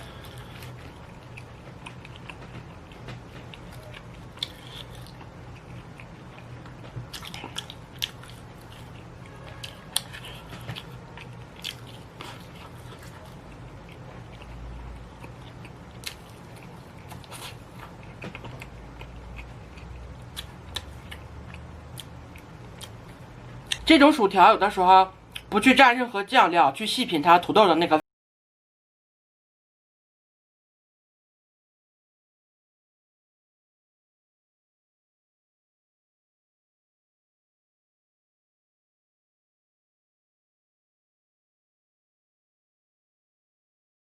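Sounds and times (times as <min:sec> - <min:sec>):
person chewing crunchy food: 0:00.0 - 0:23.8.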